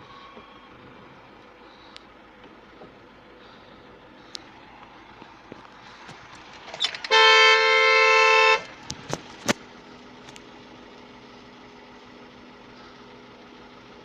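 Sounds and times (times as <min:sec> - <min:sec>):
faint steady hum: 0:00.0 - 0:09.0
vehicle horn blast: 0:06.8 - 0:08.7.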